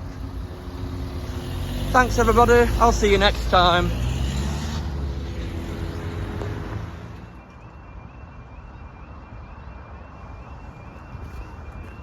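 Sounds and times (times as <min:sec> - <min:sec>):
vehicle engine drone: 0:00.0 - 0:07.6
two-tone level-crossing alarm: 0:05.5 - 0:12.0.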